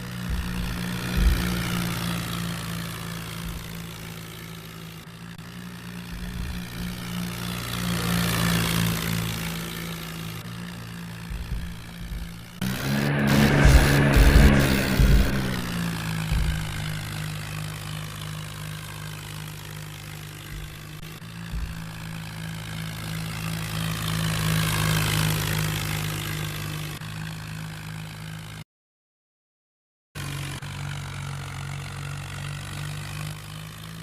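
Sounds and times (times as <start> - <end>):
tractor engine running: 0.0 - 28.6, 30.2 - 34.0
low knocks: 0.2 - 4.0, 6.2 - 7.1, 10.6 - 17.4, 20.4 - 22.4.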